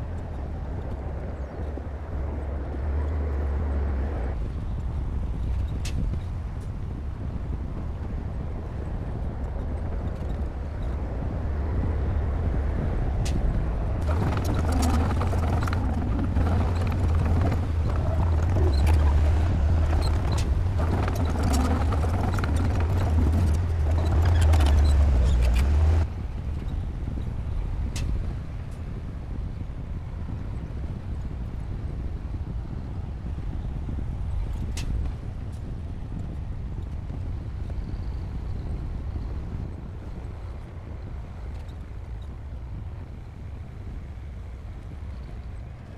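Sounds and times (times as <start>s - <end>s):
bulldozer diesel engine rumbling: 14.0s - 26.1s.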